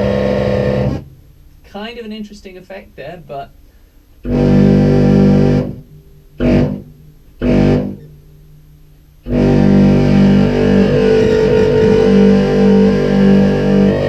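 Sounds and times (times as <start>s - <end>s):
distorted buzzy clarinet: 0.0s - 1.1s, 4.2s - 5.8s, 6.4s - 8.0s, 9.3s - 14.0s.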